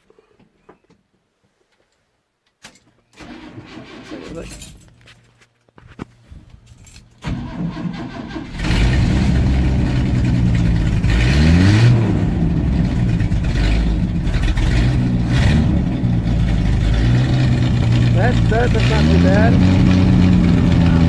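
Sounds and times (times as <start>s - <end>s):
engine starter cranking: 3.2s - 4.6s, 7.2s - 21.0s
truck engine running and revving: 8.2s - 21.0s.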